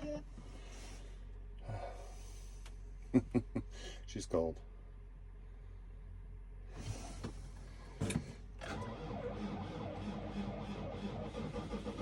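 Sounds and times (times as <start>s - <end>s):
diesel engine cranking: 6.7s - 12.0s.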